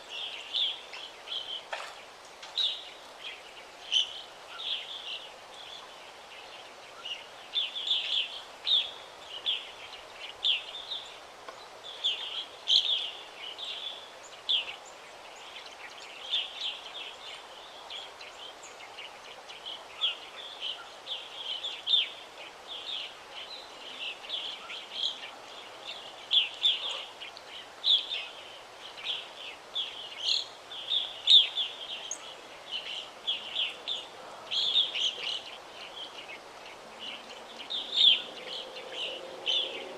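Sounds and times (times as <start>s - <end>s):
faint background hiss: 0.0s - 39.9s
songbirds chirping and singing: 22.7s - 39.9s.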